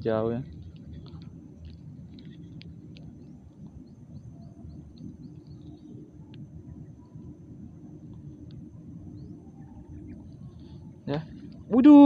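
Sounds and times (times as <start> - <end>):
steady low rumble: 0.0 - 12.0
bird chirping: 2.2 - 7.2, 9.0 - 11.8.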